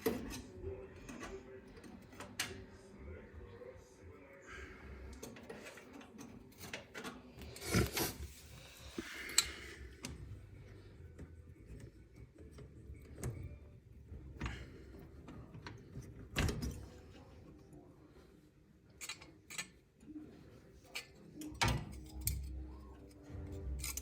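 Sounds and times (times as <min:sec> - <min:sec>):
metal parts clicking and knocking: 0:19.0 - 0:19.8, 0:20.9 - 0:24.0
metal parts clattering: 0:23.5 - 0:24.0.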